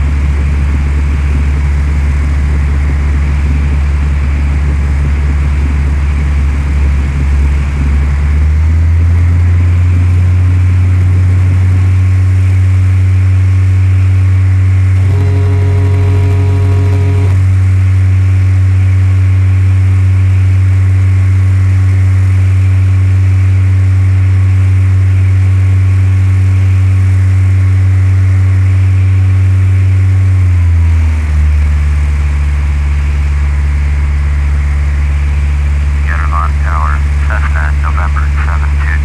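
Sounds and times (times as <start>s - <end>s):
propeller plane engine drone: 0.0s - 39.0s
steady tone: 15.0s - 17.5s.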